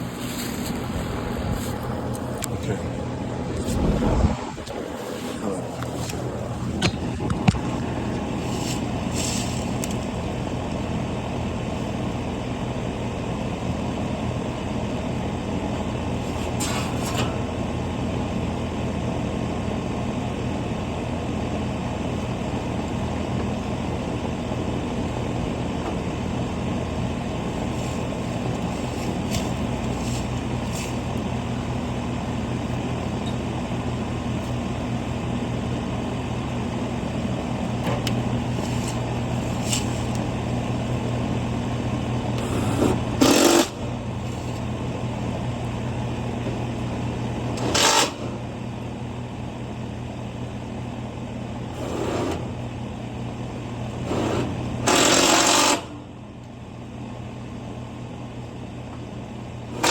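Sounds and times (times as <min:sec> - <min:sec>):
machinery humming: 0:00.0 - 0:10.6, 0:38.5 - 0:46.3.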